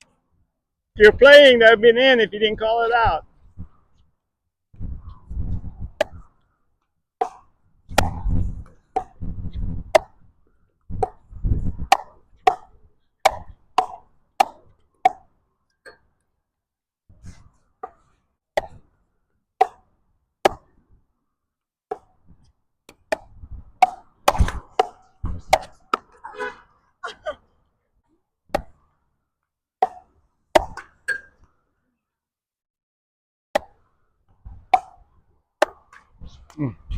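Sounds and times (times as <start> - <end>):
wind buffeting microphone: 4.8 - 6.0, 11.2 - 11.9.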